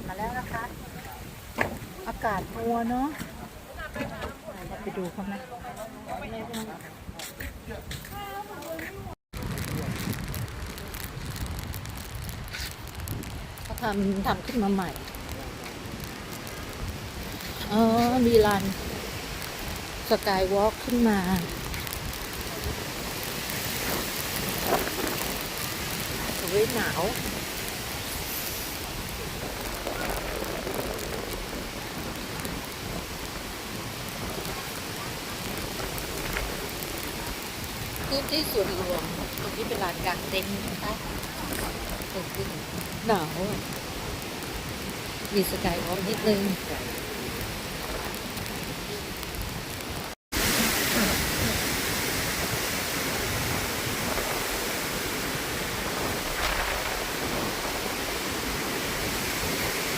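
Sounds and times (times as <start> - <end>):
low uneven rumble: 0.0 - 50.0
steady rain hissing: 0.0 - 59.9
wind: 0.0 - 59.9.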